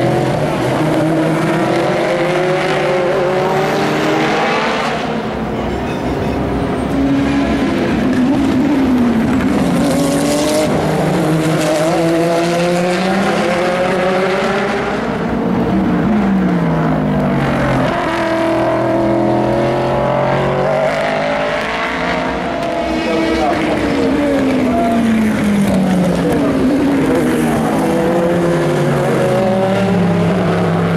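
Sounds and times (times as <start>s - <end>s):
racing cars passing at speed: 0.0s - 30.9s.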